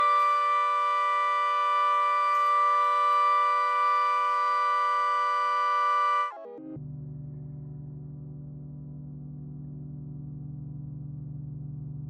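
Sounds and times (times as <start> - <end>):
steady electronic chord: 0.0 - 6.4.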